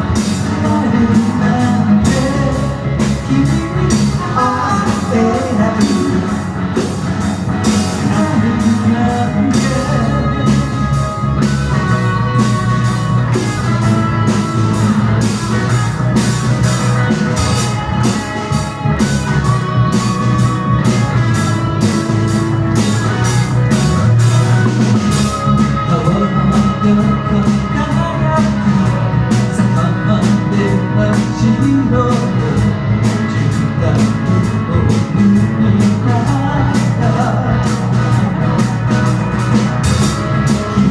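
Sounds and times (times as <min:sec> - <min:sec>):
person singing: 0:00.0 - 0:07.0, 0:07.6 - 0:15.0, 0:25.0 - 0:39.5
drum kit beat: 0:00.0 - 0:40.9
guitar: 0:00.0 - 0:40.9.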